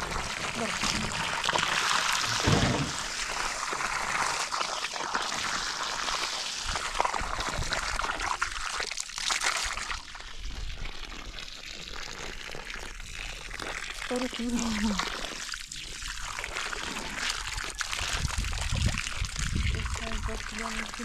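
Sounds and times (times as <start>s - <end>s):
water pouring and trickling: 0.0s - 21.0s
low thump: 2.3s - 3.1s.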